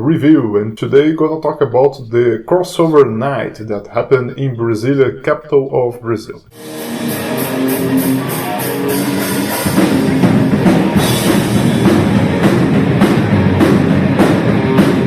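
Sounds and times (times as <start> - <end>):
heavy metal music: 6.5 - 15.0.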